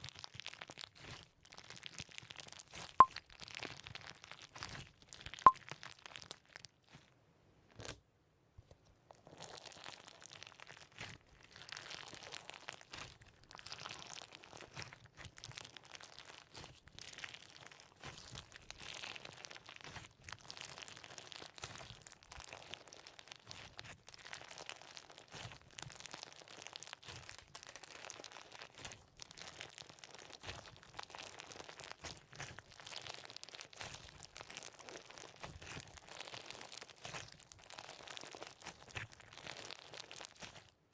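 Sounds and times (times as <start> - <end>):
crunchy slime crackling: 0.0 - 7.0, 9.3 - 40.8.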